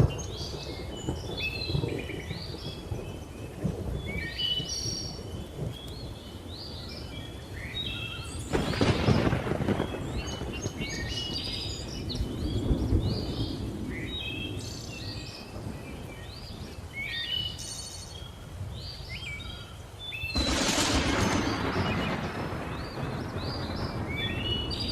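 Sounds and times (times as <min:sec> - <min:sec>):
loud thunderclap: 0:00.0 - 0:04.2, 0:08.5 - 0:14.0, 0:20.3 - 0:24.9
low rumble of thunder: 0:00.0 - 0:17.3, 0:20.2 - 0:24.9
birds chirping and whistling: 0:00.0 - 0:24.9.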